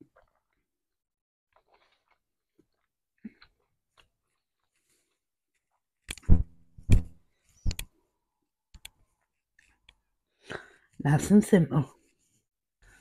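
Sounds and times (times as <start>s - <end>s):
chewing spaghetti: 0.0s - 0.8s, 1.5s - 5.9s
loud low thumps: 6.2s - 7.8s.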